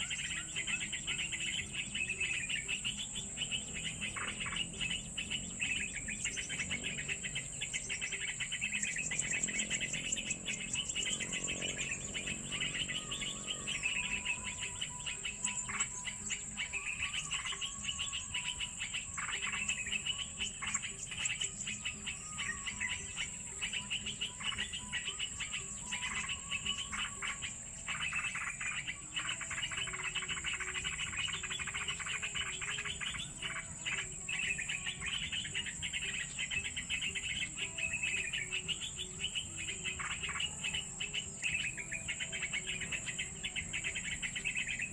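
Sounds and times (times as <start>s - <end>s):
birds chirping: 0.0s - 44.9s
faint held music tones: 0.0s - 44.9s
high insect buzz: 0.0s - 44.9s.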